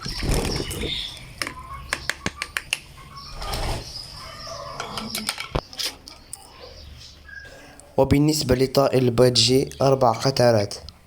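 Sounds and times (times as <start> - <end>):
sharp taps and clicks: 1.4 - 2.9.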